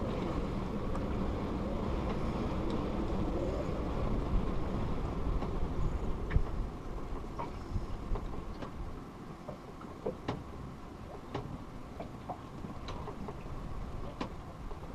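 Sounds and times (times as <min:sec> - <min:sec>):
low wind rumble: 0:00.0 - 0:14.9
light knocks and ticks: 0:06.3 - 0:08.8, 0:09.4 - 0:14.8.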